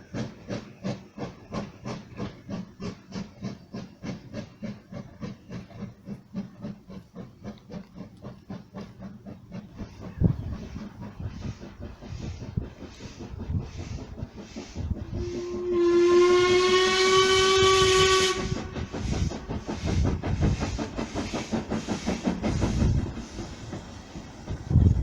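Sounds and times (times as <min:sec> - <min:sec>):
steam locomotive exhaust beats: 0:00.0 - 0:25.0
steam whistle blast: 0:15.1 - 0:18.9.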